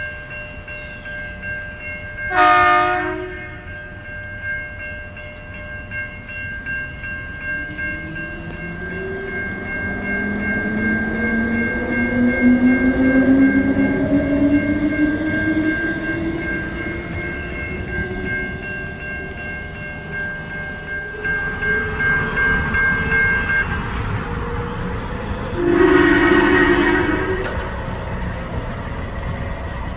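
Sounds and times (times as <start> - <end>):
level crossing warning tone: 7.9 - 18.7, 25.3 - 28.1
electric train motors whining: 23.5 - 29.9.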